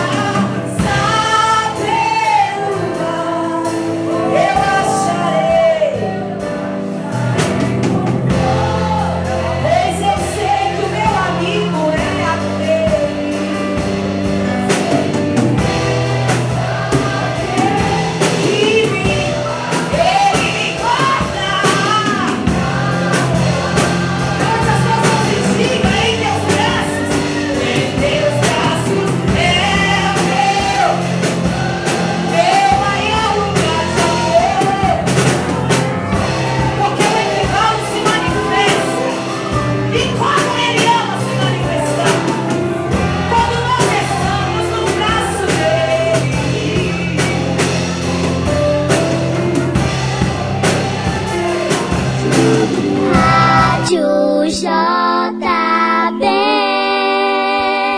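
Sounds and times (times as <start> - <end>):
drum beat: 0.0 - 6.1, 6.7 - 53.9
held bass notes: 0.0 - 54.2
band playing: 0.0 - 57.9
person singing: 51.1 - 57.9.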